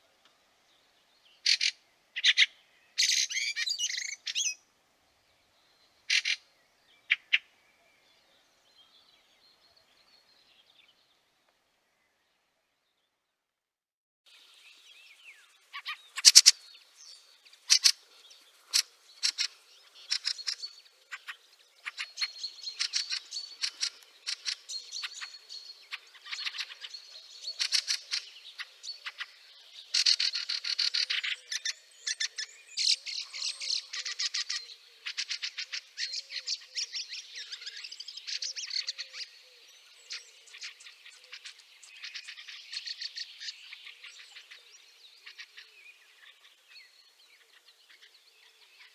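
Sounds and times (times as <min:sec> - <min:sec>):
birds chattering: 0:14.4 - 0:48.9.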